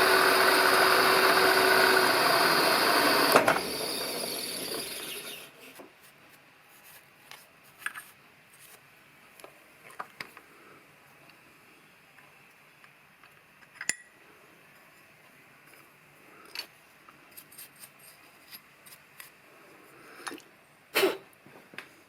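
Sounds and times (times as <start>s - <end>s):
workshop machine running down: 0.0s - 5.5s.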